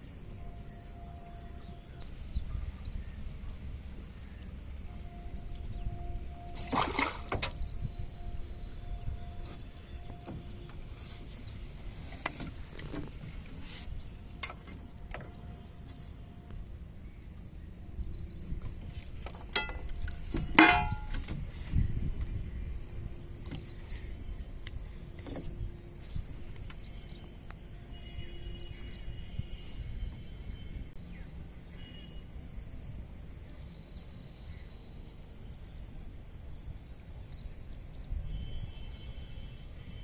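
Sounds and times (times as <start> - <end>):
insects chirring: 0.0 - 40.0.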